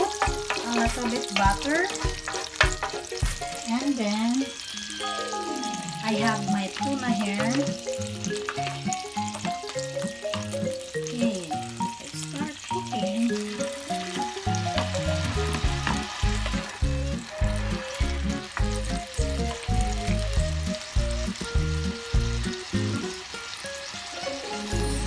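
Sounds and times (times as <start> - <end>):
fish sizzling in a pan: 0.0 - 25.0
music with bass beat: 14.4 - 22.6.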